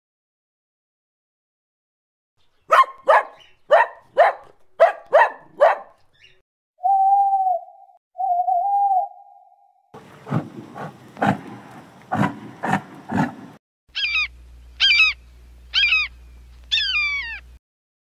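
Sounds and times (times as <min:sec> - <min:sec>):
dog barking: 0:02.7 - 0:06.0
rough noisy animal sound: 0:10.0 - 0:17.6.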